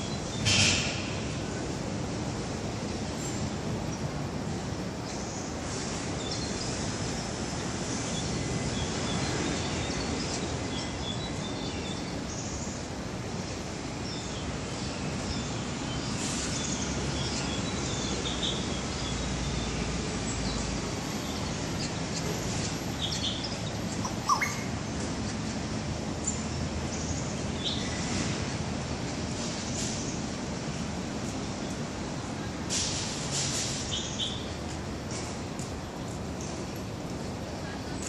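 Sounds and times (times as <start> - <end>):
birds tweeting: 0.0 - 1.6, 5.0 - 28.6, 33.8 - 34.6.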